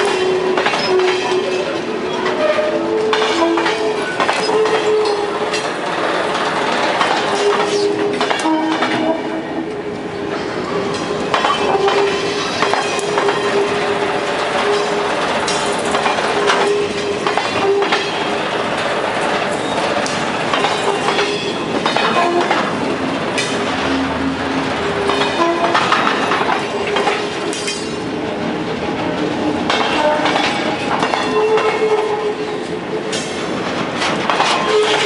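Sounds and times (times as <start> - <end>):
train wheels clacking over rail joints: 0.0 - 35.0.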